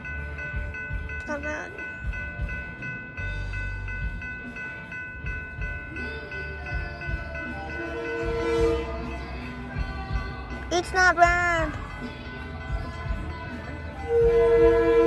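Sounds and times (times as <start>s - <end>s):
crossing bell ringing: 0.0s - 15.0s
train rumbling: 0.0s - 15.0s.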